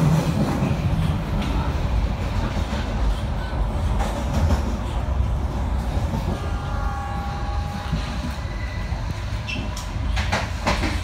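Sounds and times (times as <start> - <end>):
train rumbling: 0.0 - 11.0
high wheel squeal: 6.4 - 9.8.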